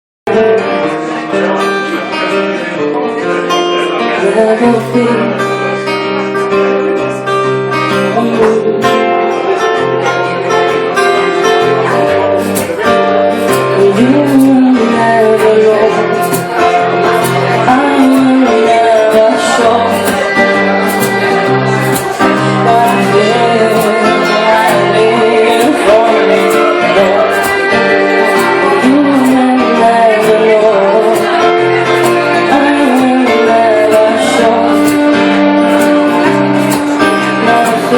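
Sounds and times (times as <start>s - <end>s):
person singing: 0.3s - 6.2s, 7.1s - 37.9s
strummed acoustic guitar: 0.3s - 37.9s
violin melody: 0.3s - 37.9s.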